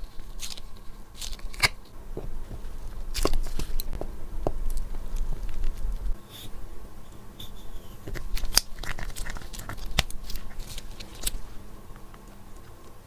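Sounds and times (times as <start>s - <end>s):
packaging scraping and crinkling: 0.0s - 2.0s, 2.6s - 3.9s, 8.1s - 11.5s.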